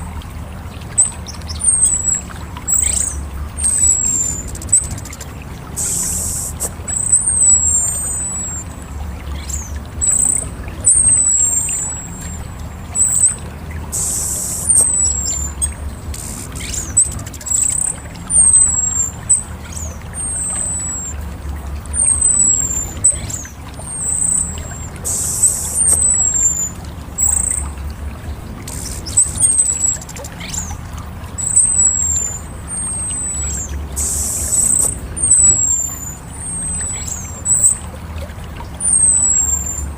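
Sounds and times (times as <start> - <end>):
steady low rumble: 0.0 - 38.8
thrush whistled calls: 0.7 - 39.9
brief hissing bursts: 5.8 - 6.8, 16.2 - 16.7.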